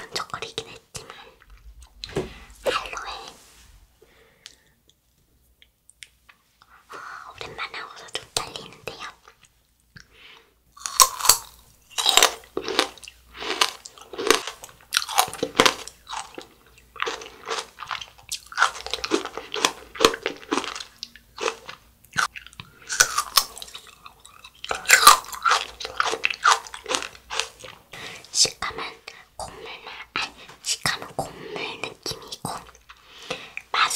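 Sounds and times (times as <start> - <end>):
crunching candy coating: 10.7 - 27.9
chewing: 10.8 - 27.8.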